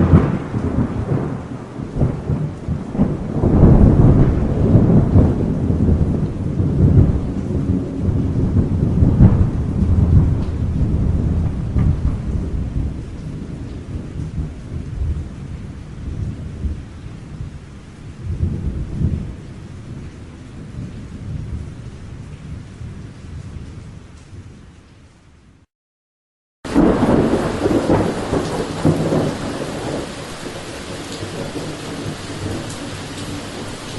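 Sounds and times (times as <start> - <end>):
thunder rumbling: 0.0 - 17.6, 26.7 - 33.9
steady rain: 0.0 - 25.7, 26.7 - 33.9.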